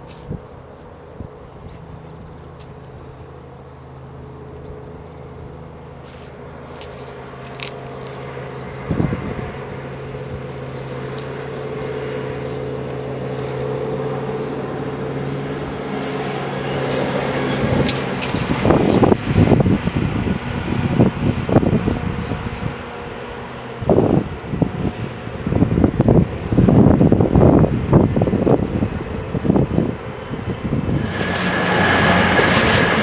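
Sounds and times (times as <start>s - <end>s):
diesel train engine humming: 30.9s - 33.0s.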